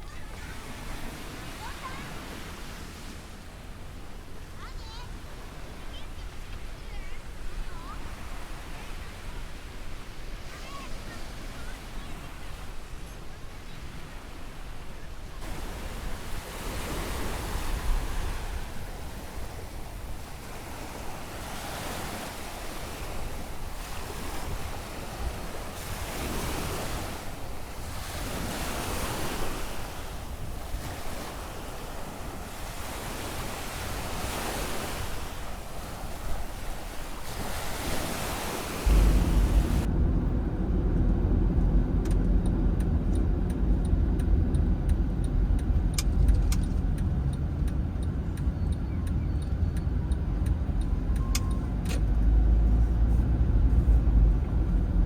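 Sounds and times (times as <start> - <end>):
surf breaking on a beach: 0.0 - 55.0
wind rumbling on microphone: 15.4 - 55.0
steady low rumble: 38.8 - 55.0.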